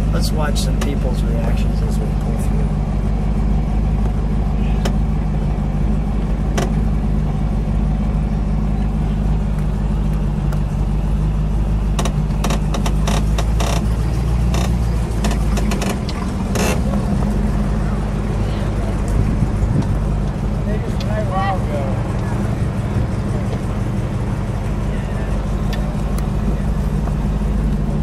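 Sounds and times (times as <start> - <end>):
sharp clicks and rattles: 0.0 - 7.7, 9.2 - 28.0
car engine running: 0.0 - 28.0.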